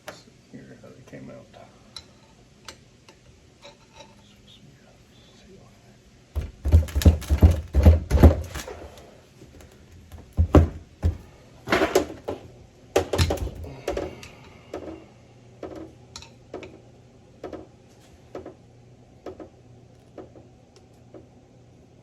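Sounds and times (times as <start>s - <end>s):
metal parts knocking and clattering: 6.4s - 9.0s, 9.6s - 12.3s, 13.0s - 13.7s.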